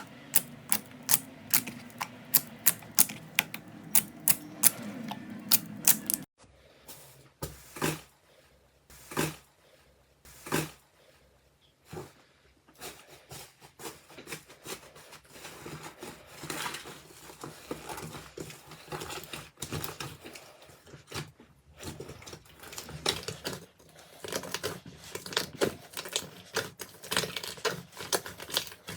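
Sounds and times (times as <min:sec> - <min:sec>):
slime squished by hand: 0:00.0 - 0:06.3.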